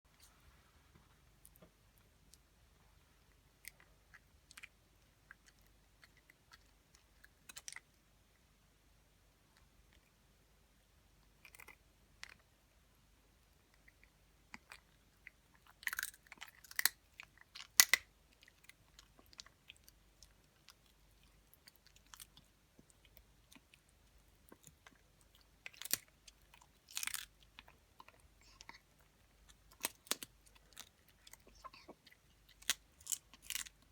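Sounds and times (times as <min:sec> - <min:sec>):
dog crunching dry kibble: 0:24.5 - 0:28.8.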